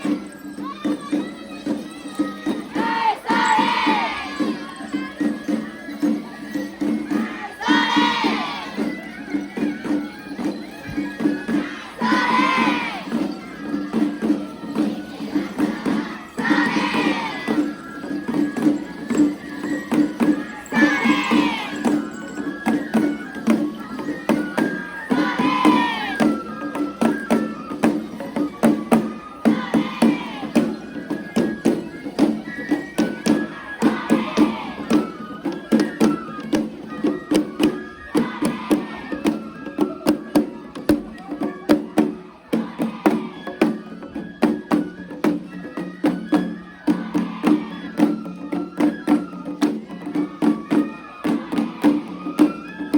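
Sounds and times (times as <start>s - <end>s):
voices calling: 0.0s - 39.4s
fast percussion strikes: 0.0s - 52.9s.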